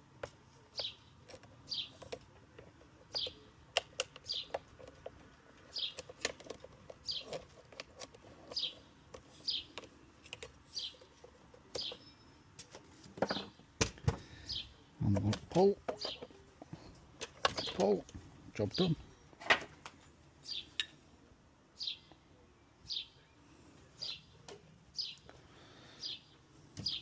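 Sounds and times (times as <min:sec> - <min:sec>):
parts clicking and knocking: 0:00.0 - 0:20.0
small bird chirping: 0:00.6 - 0:12.5, 0:14.4 - 0:16.5, 0:20.4 - 0:21.0, 0:21.8 - 0:25.3, 0:25.9 - 0:27.0.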